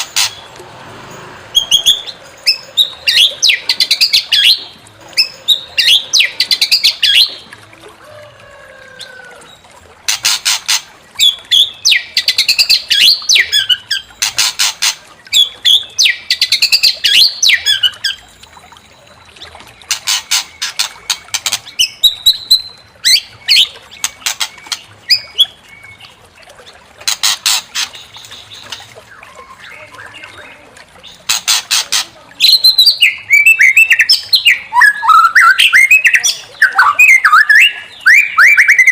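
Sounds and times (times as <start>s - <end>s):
bird whistled phrases: 32.4s - 38.9s.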